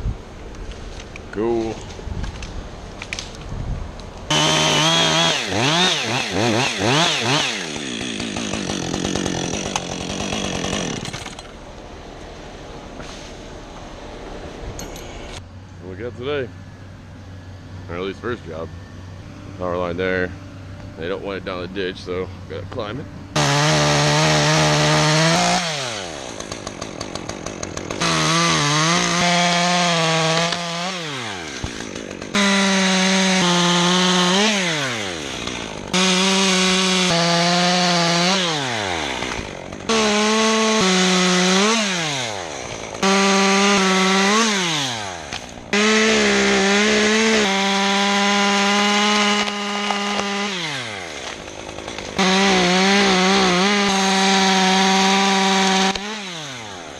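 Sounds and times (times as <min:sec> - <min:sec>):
chainsaw cutting wood: 0:04.3 - 0:11.6, 0:23.3 - 0:56.9.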